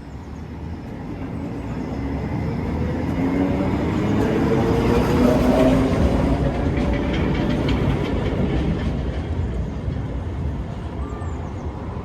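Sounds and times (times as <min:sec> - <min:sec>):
tram rumbling on track: 0:00.0 - 0:12.0.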